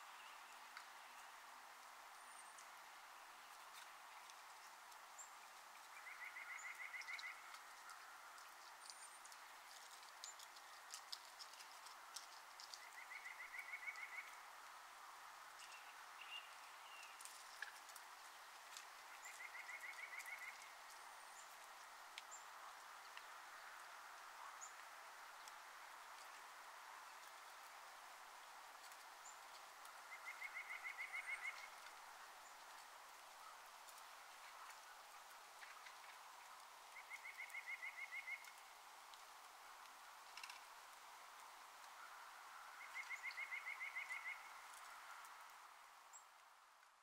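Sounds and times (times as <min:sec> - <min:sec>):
outdoor background noise: 0:00.0 - 0:47.0
thin high bird calls: 0:05.2 - 0:09.5, 0:12.6 - 0:14.4, 0:15.6 - 0:21.6, 0:29.2 - 0:32.6, 0:36.9 - 0:38.6, 0:42.0 - 0:45.3
songbird rapid trill: 0:19.1 - 0:21.6, 0:37.0 - 0:38.6, 0:42.8 - 0:44.6.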